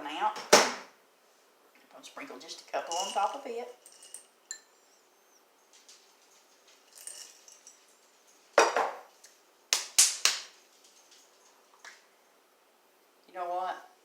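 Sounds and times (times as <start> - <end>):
kitchenware knock with ring: 8.6 - 9.0.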